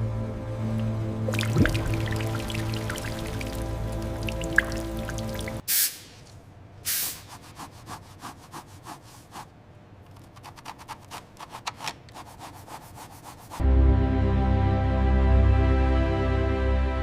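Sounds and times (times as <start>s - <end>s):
hand rubbing strokes: 12.2s - 13.6s.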